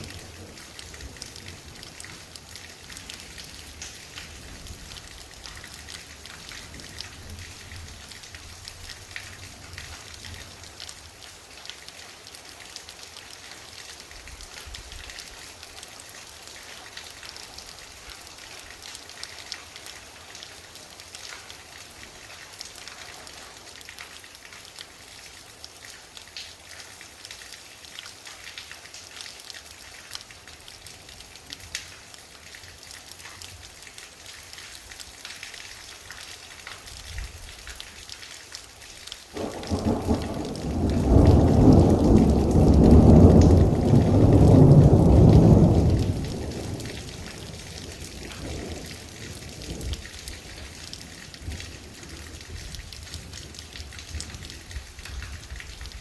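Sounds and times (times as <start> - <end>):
rain falling: 0.0 - 56.0
loud thunderclap: 39.4 - 46.9
distant thunder rumble: 39.4 - 47.5.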